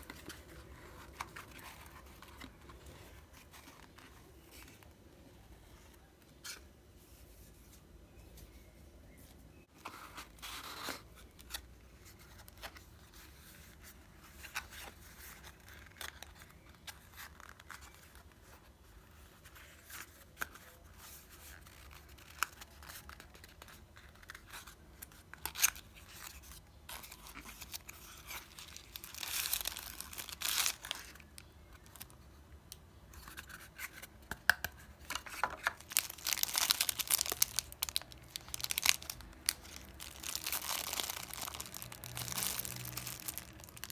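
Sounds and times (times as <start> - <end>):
packaging rustling and crinkling: 25.6 - 32.2, 35.0 - 43.9.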